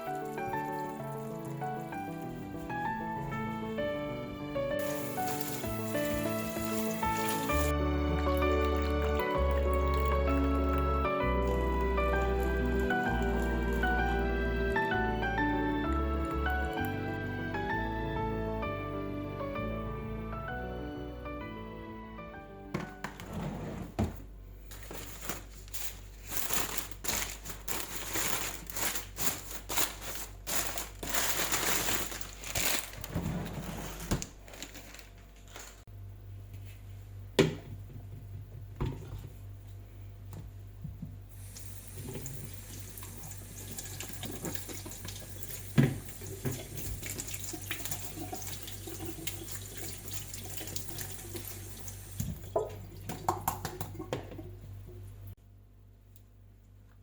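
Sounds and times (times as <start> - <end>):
kitchen handling noises: 22.7 - 35.9
tap running into a sink: 41.9 - 54.5.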